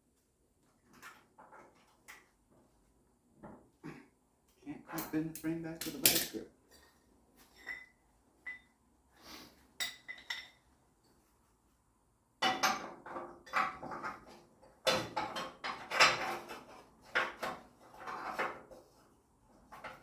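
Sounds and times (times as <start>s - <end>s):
metal tools clinking on metal: 4.9s - 6.4s.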